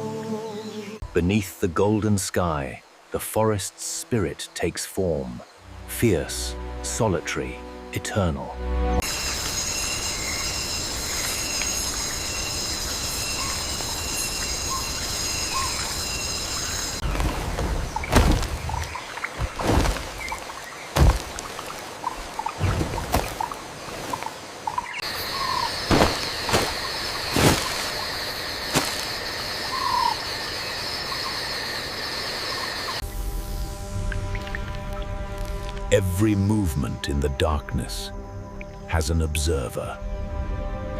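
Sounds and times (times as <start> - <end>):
constant hiss: 0.0 - 40.0
insects buzzing: 0.0 - 40.9
short thumps: 21.0 - 21.5.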